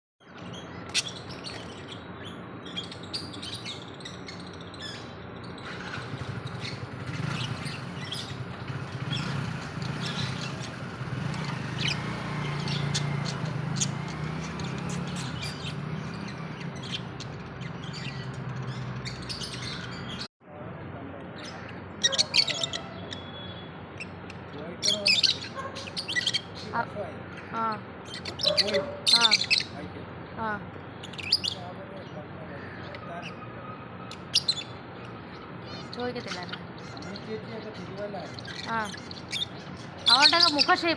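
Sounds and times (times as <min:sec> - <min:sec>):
lovebirds chirping: 0:00.2 - 0:20.3, 0:21.2 - 0:40.9.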